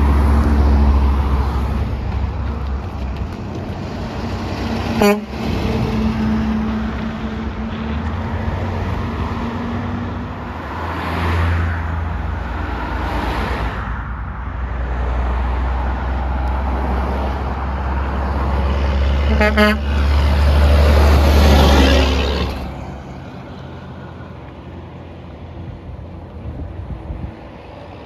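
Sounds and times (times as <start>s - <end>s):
heavy vehicles driving past: 0.0s - 28.0s
vehicle horn toot: 5.0s - 5.5s, 19.3s - 19.9s.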